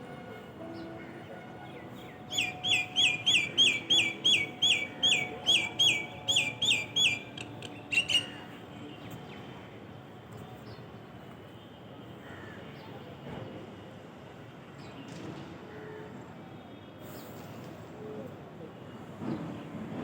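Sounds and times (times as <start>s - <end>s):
faint outdoor background noise: 0.0s - 20.0s
bird calling downslurred notes: 2.3s - 8.4s.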